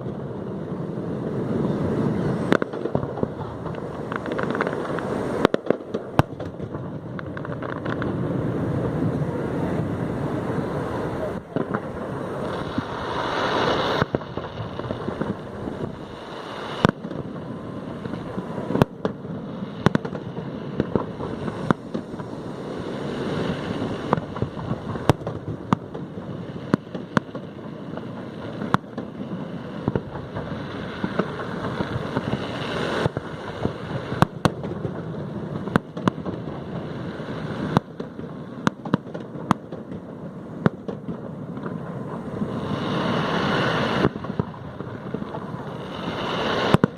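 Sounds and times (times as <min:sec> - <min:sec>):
fireworks bursting: 0:00.0 - 0:46.9
steady rushing noise: 0:00.0 - 0:46.9.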